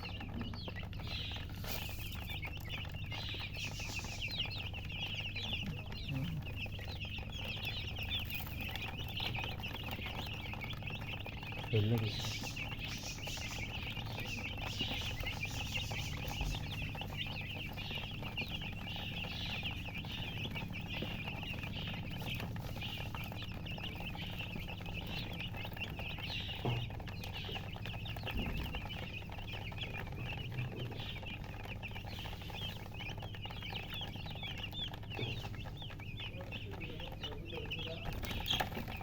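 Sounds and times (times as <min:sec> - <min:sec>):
chicks peeping: 0:00.0 - 0:39.0.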